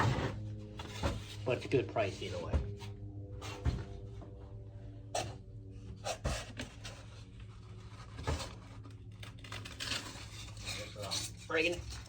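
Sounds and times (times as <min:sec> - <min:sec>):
steady low hum: 0:00.0 - 0:12.0
rustling packing material: 0:07.7 - 0:12.0.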